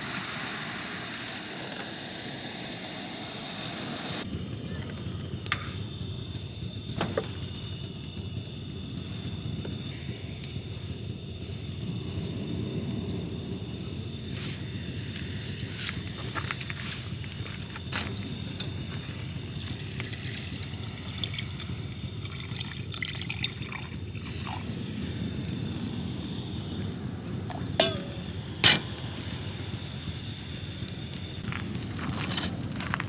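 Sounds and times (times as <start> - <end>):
liquid dripping and trickling: 18.0 - 26.0.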